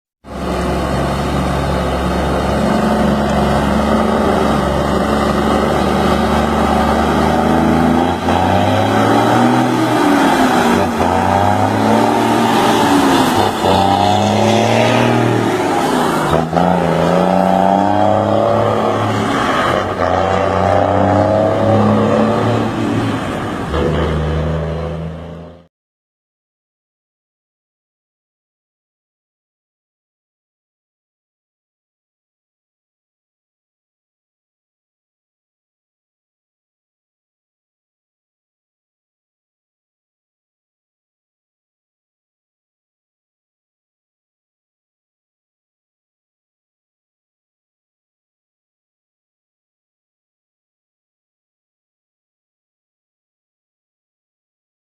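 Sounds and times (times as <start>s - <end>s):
truck engine accelerating: 0.3s - 25.7s.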